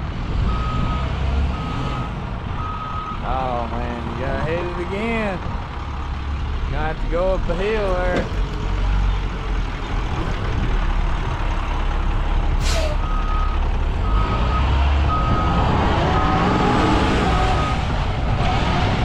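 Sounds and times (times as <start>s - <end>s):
bus engine rumbling: 0.0s - 19.0s
short air hiss: 12.6s - 13.0s
reversing alarm beeping: 12.9s - 16.6s.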